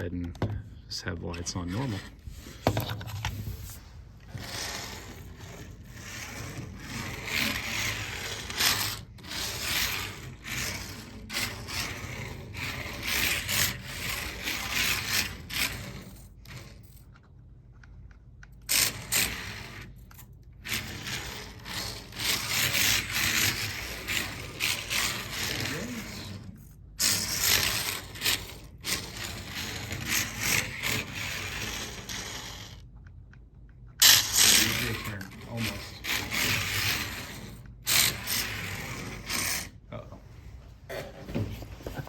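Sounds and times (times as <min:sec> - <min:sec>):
tyres scrubbing on tabletop: 0:01.5 - 0:16.2, 0:20.7 - 0:32.8, 0:34.0 - 0:39.8
tiny electric motor whirring: 0:03.6 - 0:16.8, 0:18.7 - 0:32.8, 0:34.0 - 0:39.7.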